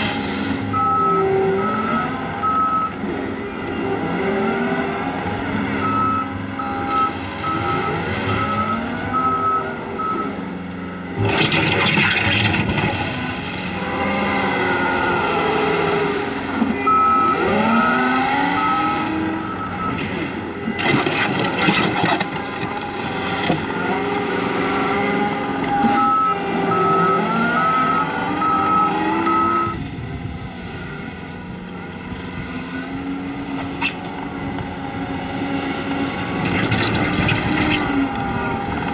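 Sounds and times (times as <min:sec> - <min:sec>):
diesel engine revving: 0:00.0 - 0:38.9
backup alarm beeping: 0:00.7 - 0:01.8, 0:05.8 - 0:10.3, 0:25.7 - 0:29.8.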